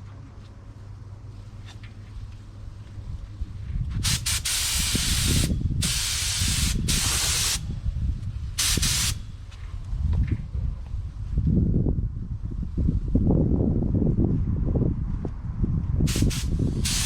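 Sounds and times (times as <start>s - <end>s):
spray paint hissing: 4.0s - 7.7s, 8.6s - 9.3s, 16.1s - 17.0s.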